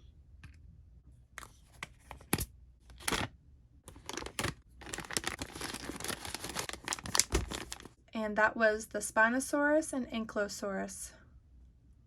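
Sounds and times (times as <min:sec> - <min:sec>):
packaging rustling and crinkling: 0:03.9 - 0:08.0.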